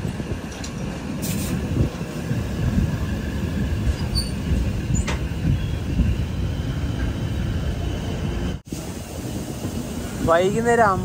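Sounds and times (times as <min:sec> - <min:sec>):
train wheels rumbling on rails: 0:00.0 - 0:11.0
short high squeaks: 0:03.9 - 0:05.2.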